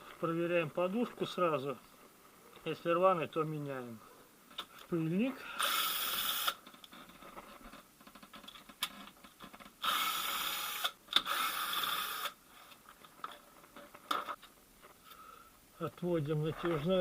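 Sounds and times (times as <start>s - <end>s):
hand-held power tool running: 5.6s - 6.6s, 9.8s - 12.4s.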